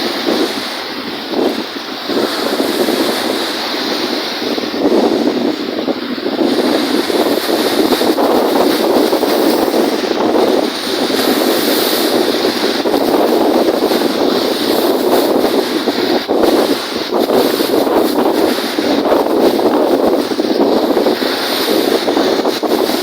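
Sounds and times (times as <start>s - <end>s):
lake waves washing: 0.0s - 23.0s
wind gusting across microphone: 0.0s - 23.0s.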